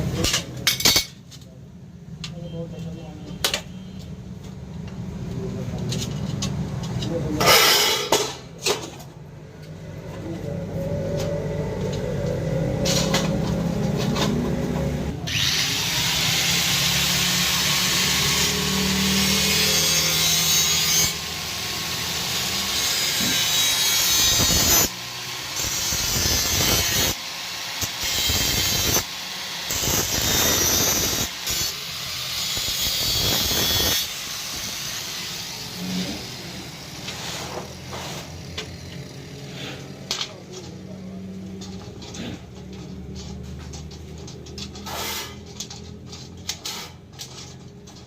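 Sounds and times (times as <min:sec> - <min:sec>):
metal cutting tool rasping: 0:15.3 - 0:40.7, 0:41.7 - 0:48.0.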